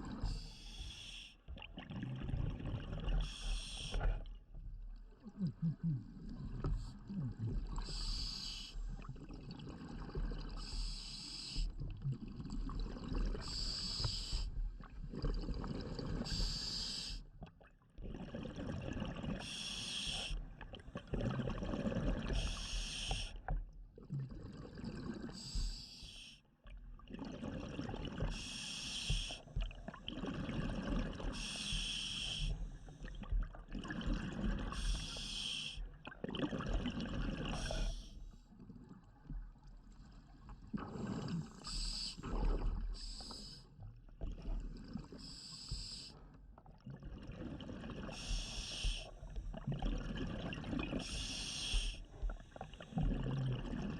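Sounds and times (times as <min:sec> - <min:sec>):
regulator hissing inhale: 0:00.2 - 0:01.4, 0:03.2 - 0:04.1, 0:07.8 - 0:08.8, 0:10.7 - 0:11.7, 0:13.4 - 0:14.5, 0:16.3 - 0:17.2, 0:19.4 - 0:20.4, 0:22.4 - 0:23.3, 0:25.4 - 0:26.4, 0:28.3 - 0:29.4, 0:31.4 - 0:32.6, 0:34.7 - 0:35.8, 0:41.2 - 0:42.4, 0:43.0 - 0:43.7, 0:45.2 - 0:46.2, 0:48.1 - 0:49.3, 0:51.0 - 0:52.8
exhaled bubbles: 0:01.5 - 0:04.4, 0:05.0 - 0:10.9, 0:11.6 - 0:25.7, 0:26.8 - 0:46.0, 0:46.6 - 0:53.9.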